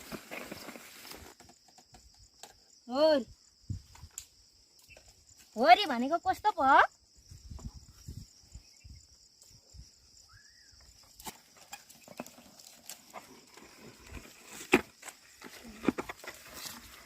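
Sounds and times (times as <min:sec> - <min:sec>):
hooves and plough thudding in soil: 0:00.0 - 0:01.8, 0:11.0 - 0:17.0
faint chirp: 0:07.4 - 0:11.1.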